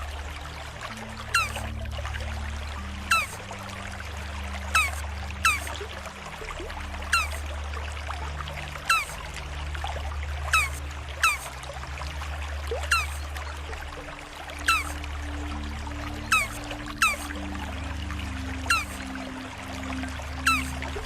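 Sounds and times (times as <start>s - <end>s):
low hum: 0.0s - 21.0s
trickle of water: 0.0s - 21.0s
turtle chirping: 1.3s - 1.7s, 3.0s - 3.4s, 4.7s - 5.8s, 7.1s - 7.4s, 8.9s - 9.2s, 10.5s - 11.5s, 12.8s - 13.3s, 14.6s - 15.0s, 16.0s - 19.3s, 20.4s - 21.0s.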